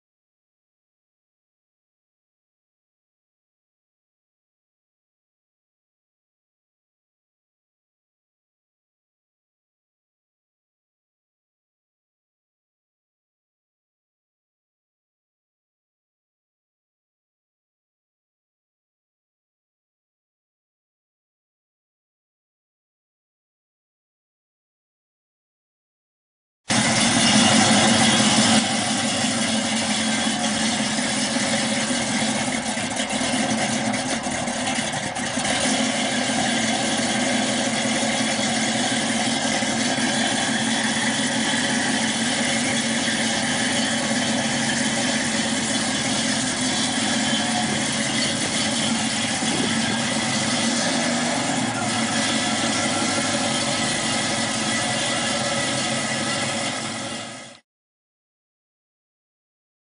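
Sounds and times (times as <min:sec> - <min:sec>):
car engine running at low speed: 0:26.7 - 0:57.6.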